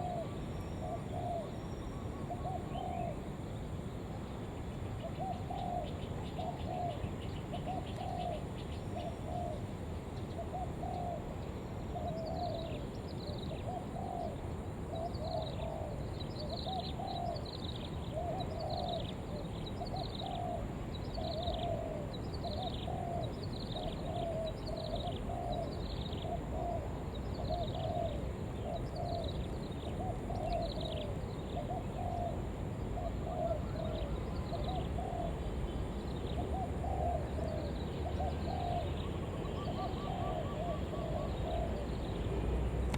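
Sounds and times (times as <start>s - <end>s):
low background noise: 0.0s - 42.9s
dove cooing: 19.9s - 29.3s, 33.0s - 35.4s, 36.4s - 42.0s.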